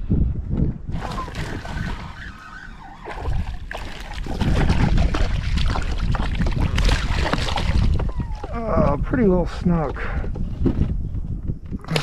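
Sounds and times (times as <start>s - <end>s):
wind rumbling on microphone: 0.0s - 12.0s
water splashing around kayak: 0.9s - 8.6s.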